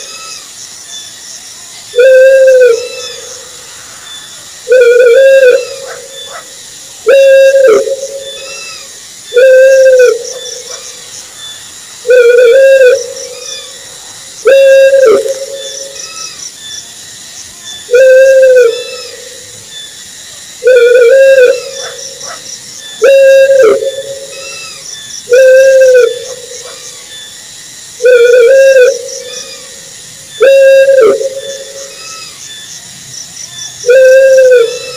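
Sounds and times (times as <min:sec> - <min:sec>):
owl hooting: 0:01.9 - 0:03.6, 0:04.7 - 0:10.9, 0:12.0 - 0:13.8, 0:14.4 - 0:16.4, 0:17.9 - 0:19.6, 0:20.6 - 0:27.0, 0:28.0 - 0:32.4, 0:33.8 - 0:34.9.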